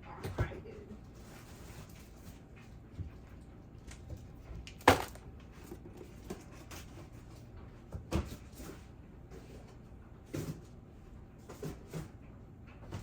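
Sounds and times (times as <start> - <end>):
clunks of things set down: 4.8 - 5.2.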